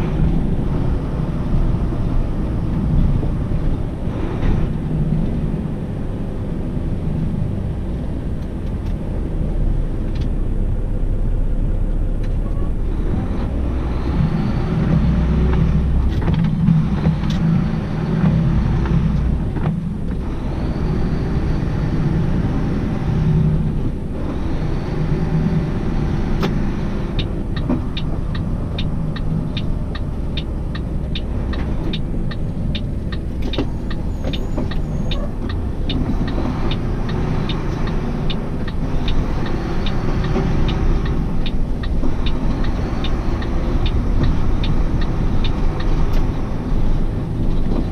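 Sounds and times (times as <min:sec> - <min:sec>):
road noise: 0:00.0 - 0:47.9
truck engine running: 0:00.0 - 0:47.9
rapid regular ticking: 0:27.2 - 0:47.2.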